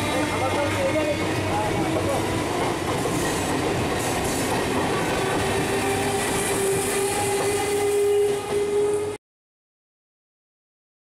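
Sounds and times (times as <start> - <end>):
train wheels clickety-clack: 0.4 - 8.8.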